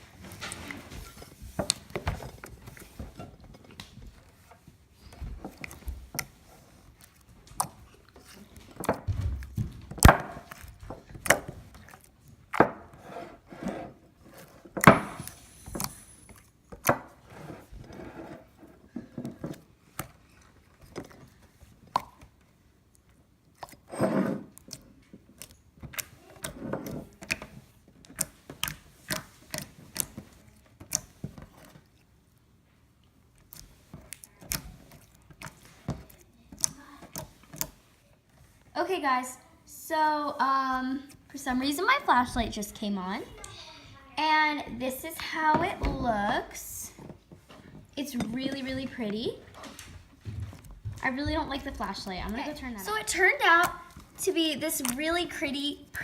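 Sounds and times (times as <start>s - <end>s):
slime squishing and popping: 24.5s - 32.0s, 33.3s - 37.9s, 53.0s - 55.3s.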